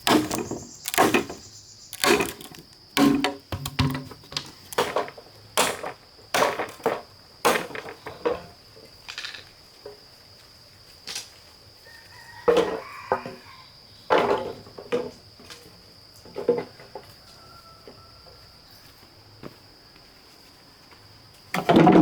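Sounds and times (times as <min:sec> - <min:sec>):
sharp knocks and clatters: 0:00.0 - 0:08.5
crickets droning: 0:00.0 - 0:22.0.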